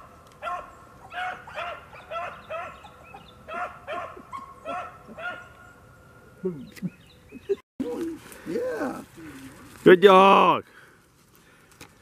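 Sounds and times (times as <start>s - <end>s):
dog yelping: 0.4s - 5.5s.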